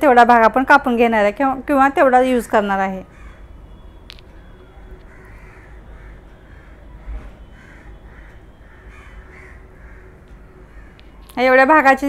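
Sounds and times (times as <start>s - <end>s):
harsh cawing bird calls: 3.0s - 11.2s.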